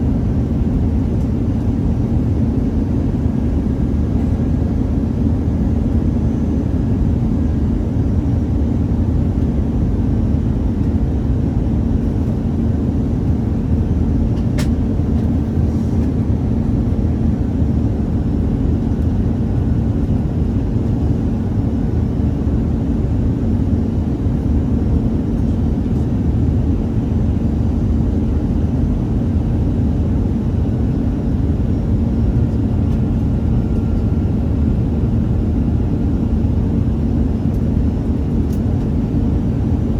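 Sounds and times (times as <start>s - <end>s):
constant hum: 0.0s - 39.9s
jet engine cabin rumble: 0.0s - 39.9s
small click: 14.4s - 14.8s.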